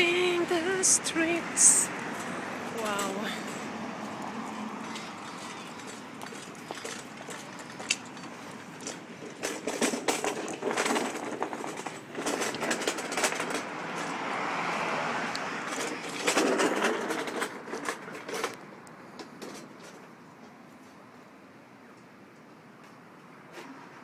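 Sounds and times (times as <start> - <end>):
vehicle passing: 0.0 - 10.0, 10.6 - 18.5
city street traffic: 0.0 - 24.0
footsteps: 1.6 - 14.2.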